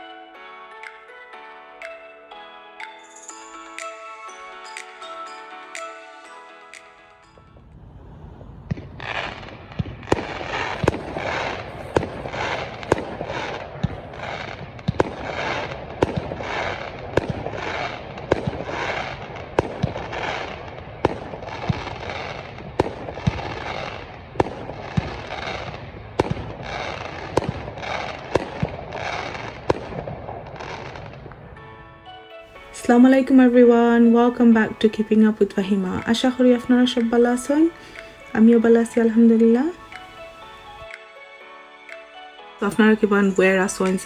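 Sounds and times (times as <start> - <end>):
fireworks crackling hiss: 7.9 - 31.1, 32.5 - 41.1
fireworks banging: 8.7 - 31.2, 32.5 - 41.0.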